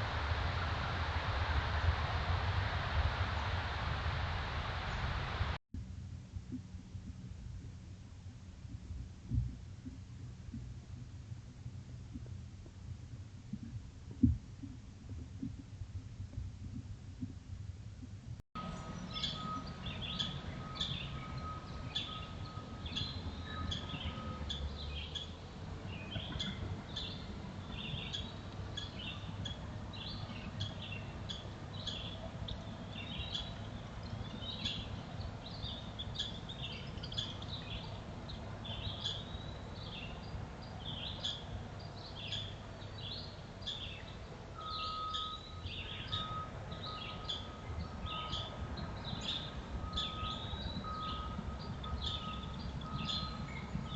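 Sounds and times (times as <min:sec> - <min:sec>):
low background rumble: 0:00.0 - 0:53.9
small birds chirping: 0:18.7 - 0:53.9.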